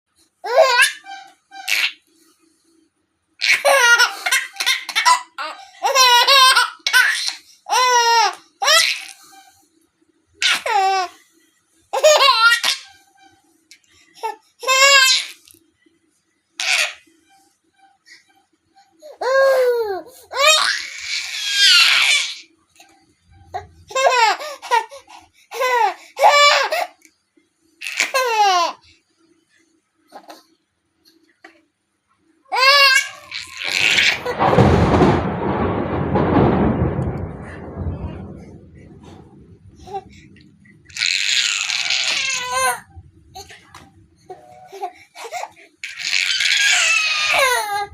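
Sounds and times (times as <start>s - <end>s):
baby laughing: 0.4s - 2.0s, 3.4s - 9.4s, 10.4s - 11.2s, 12.0s - 13.0s, 14.2s - 15.5s, 16.6s - 17.0s, 23.6s - 25.0s, 40.9s - 47.9s
baby vocalising high-pitched: 40.9s - 42.8s.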